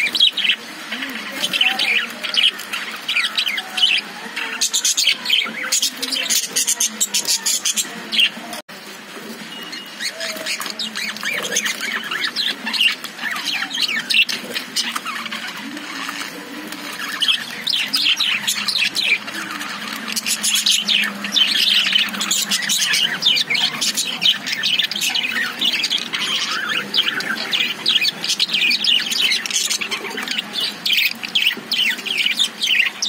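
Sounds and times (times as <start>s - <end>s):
budgerigars chattering: 9.6s - 33.0s.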